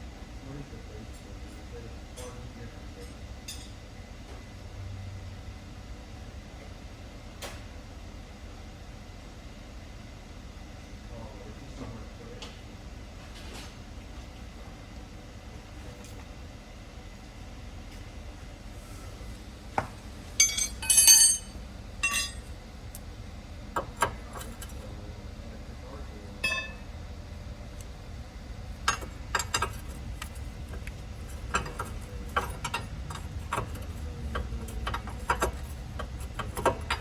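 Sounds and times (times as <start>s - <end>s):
steady low hum: 0.0s - 37.0s
metal hand tools clinking: 20.4s - 22.4s.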